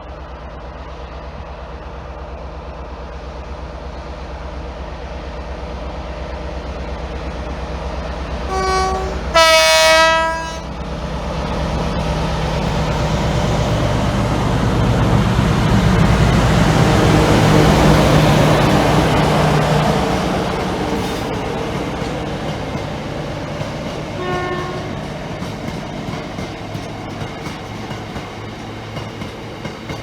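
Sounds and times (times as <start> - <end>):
train running noise: 0.0 - 30.0
two-tone train horn: 8.5 - 10.8, 24.2 - 25.1.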